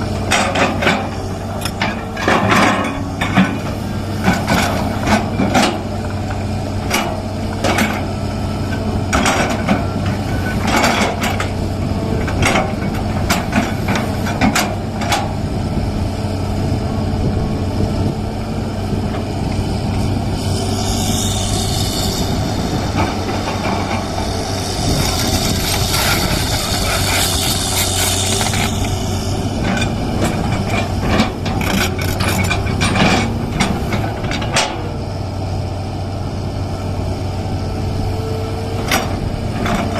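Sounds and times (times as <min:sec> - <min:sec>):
excavator diesel engine running: 0:00.0 - 0:39.9
knocks and clanks: 0:29.6 - 0:34.9.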